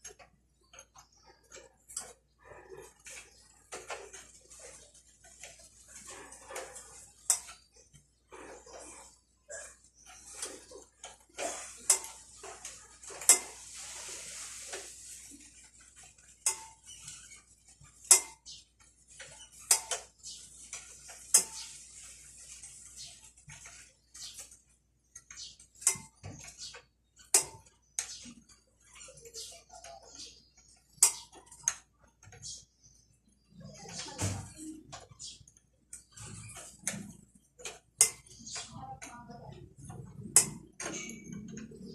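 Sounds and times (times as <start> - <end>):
metal scraping rasp: 1.8 - 24.7.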